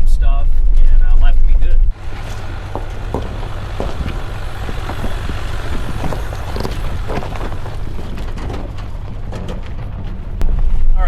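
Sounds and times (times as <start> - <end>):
engine and road rumble: 0.5 - 11.0
knocks and rattles: 2.0 - 10.5.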